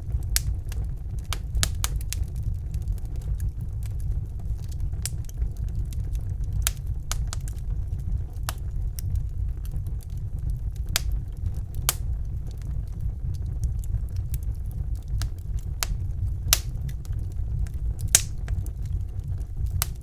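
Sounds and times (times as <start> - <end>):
low rumble of burning logs: 0.0 - 20.0
wood fire crackling: 0.0 - 20.0
sharp pops and snaps: 6.5 - 7.6, 11.0 - 11.2, 11.8 - 12.0, 14.3 - 19.0, 19.7 - 20.0.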